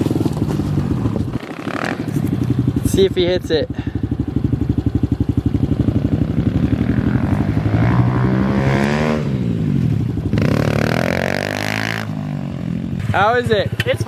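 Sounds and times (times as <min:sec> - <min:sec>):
motorbike engine revving: 0:00.0 - 0:14.0.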